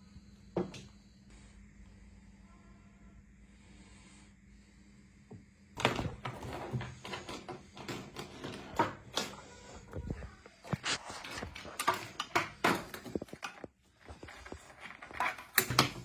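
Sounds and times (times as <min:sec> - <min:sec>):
faint steady hum: 0:00.0 - 0:16.0
kitten playing with pen: 0:05.8 - 0:16.0.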